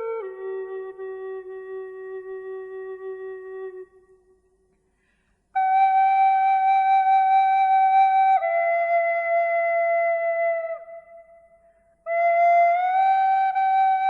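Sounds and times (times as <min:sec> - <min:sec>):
slow calm flute music: 0:00.0 - 0:14.0.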